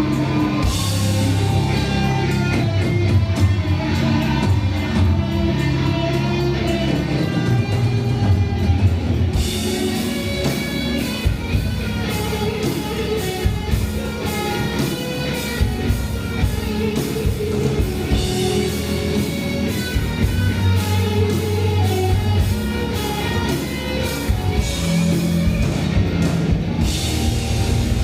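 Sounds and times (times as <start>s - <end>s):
bass guitar: 0.0s - 28.0s
drum kit: 0.0s - 28.0s
electric guitar: 0.0s - 28.0s.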